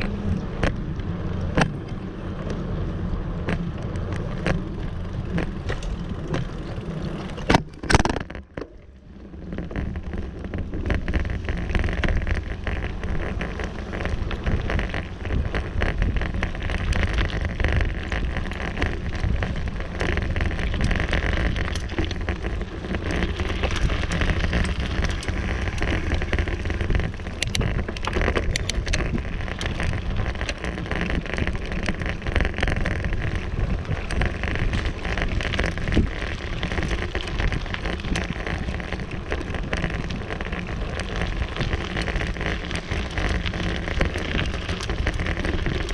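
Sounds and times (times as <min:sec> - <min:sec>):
bicycle tyre rumble and crackle: 0:00.0 - 0:45.9
wind buffeting microphone: 0:09.2 - 0:45.9.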